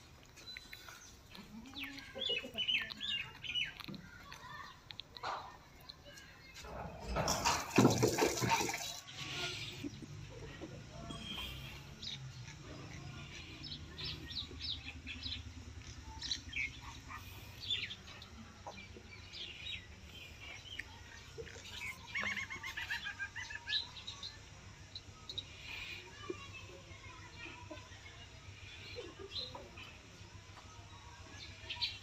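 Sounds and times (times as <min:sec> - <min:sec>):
small birds chirping: 0:00.0 - 0:07.6, 0:08.7 - 0:32.0.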